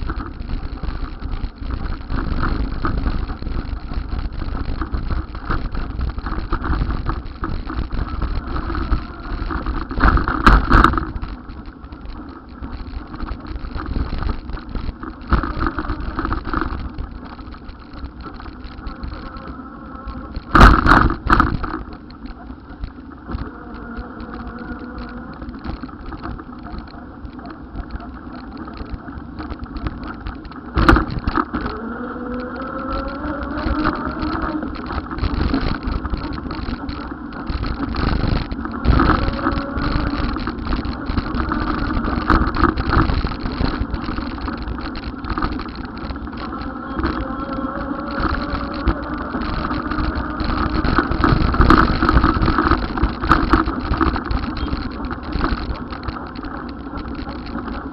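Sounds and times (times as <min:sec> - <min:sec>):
road and vehicle noise: 0:00.0 - 0:57.9
engine rising in pitch: 0:31.7 - 0:34.7, 0:46.3 - 0:50.8.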